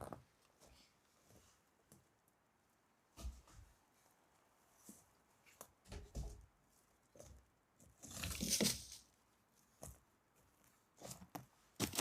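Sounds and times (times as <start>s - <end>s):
rustling: 3.1s - 12.0s
handling knocks and scrapes: 4.8s - 9.1s.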